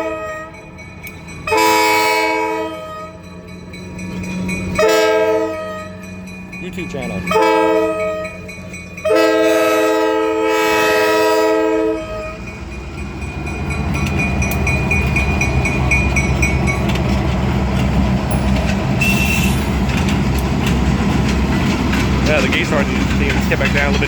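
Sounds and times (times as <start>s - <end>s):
locomotive air horn chord: 0.0s - 0.6s, 1.4s - 3.2s, 4.8s - 6.1s, 7.2s - 12.6s, 19.0s - 19.7s
diesel engine rumbling: 0.0s - 11.1s, 11.9s - 24.0s
bell dinging rapidly: 6.0s - 7.4s.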